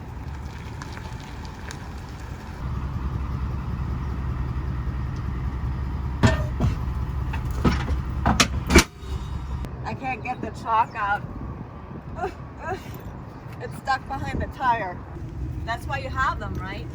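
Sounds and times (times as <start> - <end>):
truck engine running: 0.0 - 9.7, 15.1 - 16.9
sharp knocks: 6.2 - 8.9.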